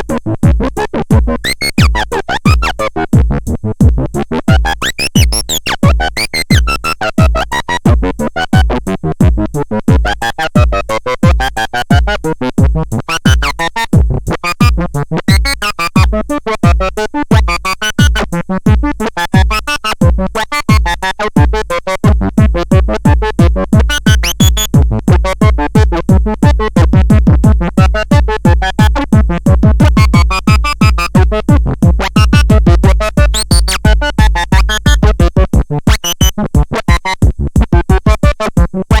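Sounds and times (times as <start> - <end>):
pulsing low beat: 0.0 - 39.0
electronic synthesizer music: 1.4 - 2.8, 4.5 - 7.6, 13.1 - 13.7, 14.4 - 16.2, 17.4 - 18.3, 19.4 - 21.0, 23.8 - 24.7, 29.9 - 37.3.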